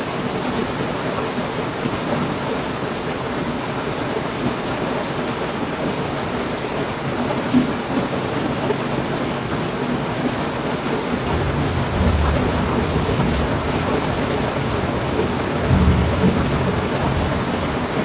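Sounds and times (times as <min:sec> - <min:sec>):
heavy rain falling: 0:00.0 - 0:18.0
low rumbles: 0:11.2 - 0:18.0.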